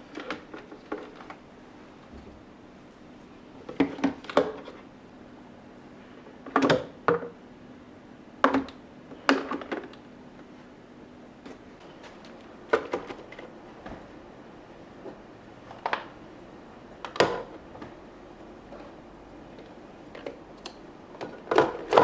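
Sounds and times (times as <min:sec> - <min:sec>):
refrigerator hum: 0:00.0 - 0:22.0
plastic containers knocking and clacking: 0:00.1 - 0:01.4, 0:03.6 - 0:04.8, 0:08.4 - 0:10.0, 0:11.9 - 0:13.5, 0:21.2 - 0:22.0.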